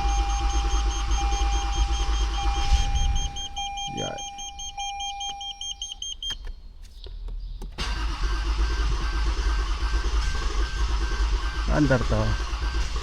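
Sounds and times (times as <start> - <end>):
dashboard warning chime: 0.0 - 6.6
car engine cranking and running: 0.0 - 13.0
clicks: 4.7 - 7.8.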